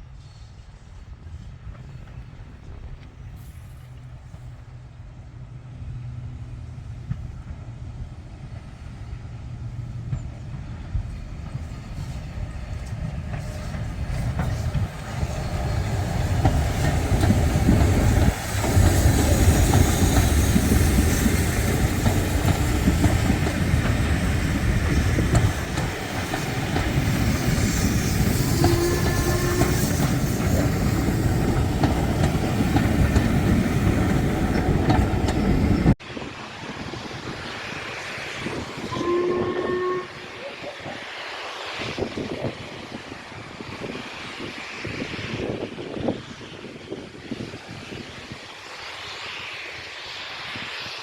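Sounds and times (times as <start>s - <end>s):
train passing: 0.0s - 51.0s.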